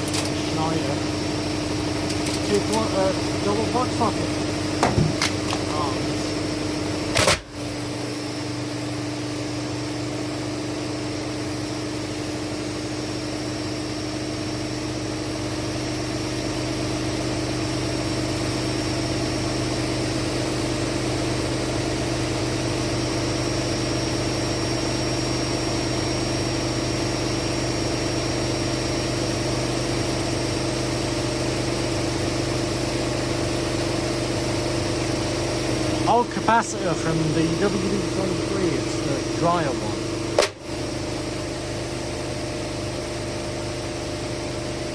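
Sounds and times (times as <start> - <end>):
washing machine spinning: 4.3 - 7.6.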